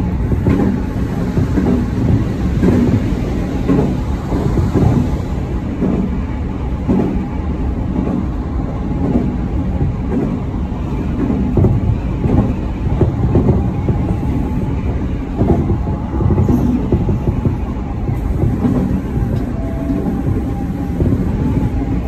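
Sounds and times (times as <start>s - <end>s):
train wheels rumbling on rail: 0.0s - 22.0s
low thuds: 9.0s - 22.0s.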